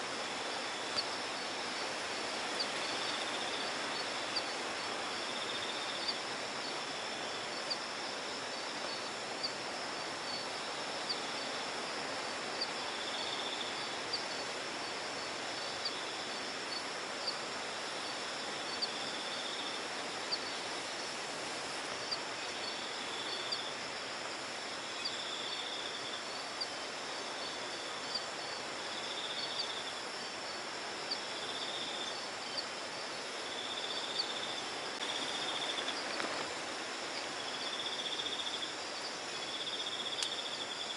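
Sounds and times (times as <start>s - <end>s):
buzzing cricket trills: 0.0s - 40.9s
insect chirps: 0.0s - 40.9s
steady hiss: 0.0s - 40.9s.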